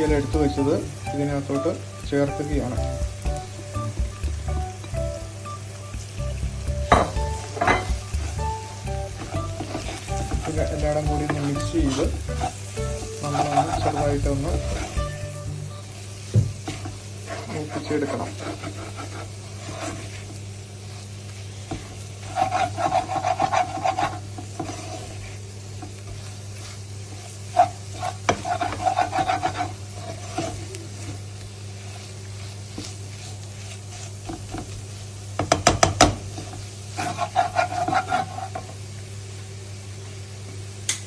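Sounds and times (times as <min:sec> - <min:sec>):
low sizzle: 0:00.0 - 0:41.0
spoon stirring and scraping pan: 0:16.8 - 0:25.4, 0:26.1 - 0:30.6, 0:36.4 - 0:38.7.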